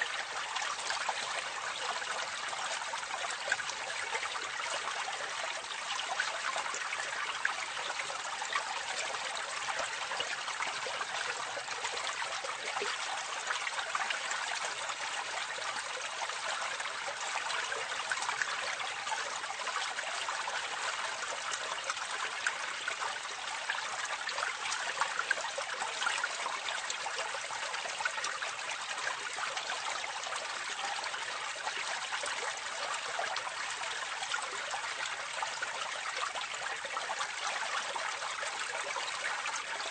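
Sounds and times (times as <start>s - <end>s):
water splashing into a drain: 0.0s - 39.9s.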